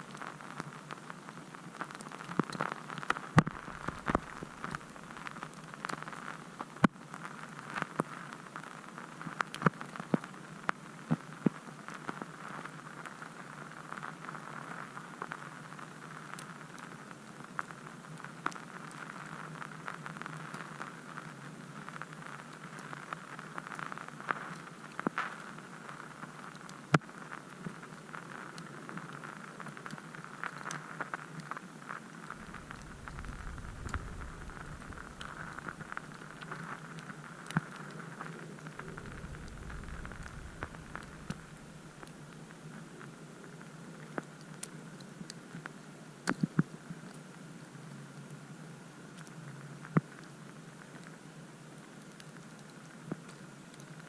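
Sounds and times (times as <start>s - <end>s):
low rumble: 3.4s - 5.2s, 32.3s - 36.6s, 38.6s - 42.2s
snow and ice pattering: 3.4s - 5.4s, 32.3s - 37.0s, 38.6s - 42.2s.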